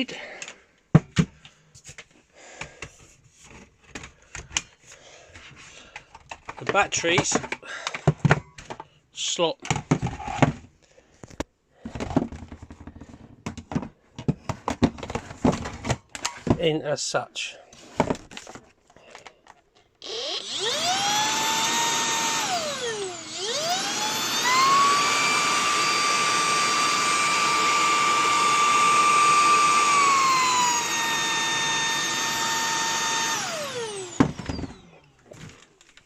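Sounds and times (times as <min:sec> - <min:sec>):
vacuum cleaner motor whining: 0:20.0 - 0:35.6.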